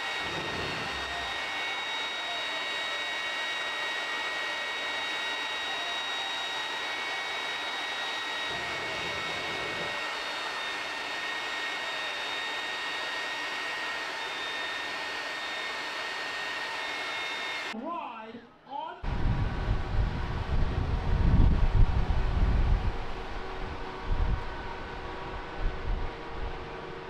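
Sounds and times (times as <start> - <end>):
high whistling tones: 0.0 - 17.8
rushing blower-like noise: 0.0 - 17.8, 19.0 - 27.0.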